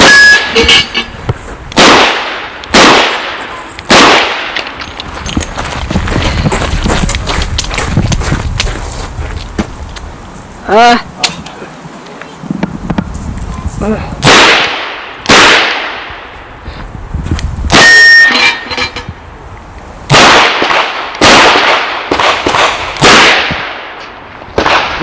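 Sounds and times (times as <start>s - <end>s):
steel target ringing: 17.8s - 19.1s.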